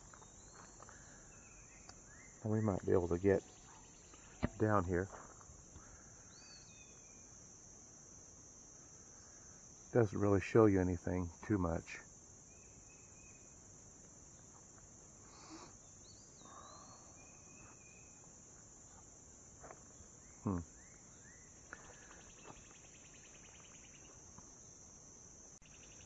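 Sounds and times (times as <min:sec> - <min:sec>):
high-pitched insect chorus: 0:00.0 - 0:26.0
faint bird chirps and whistles: 0:06.2 - 0:07.3, 0:15.3 - 0:18.2.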